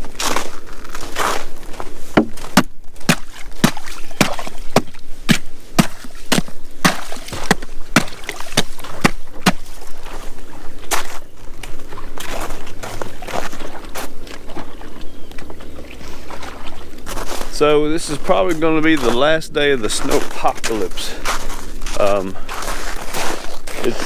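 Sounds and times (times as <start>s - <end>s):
crunching scrapes: 0.0s - 24.0s
sharp knocks: 2.2s - 9.7s.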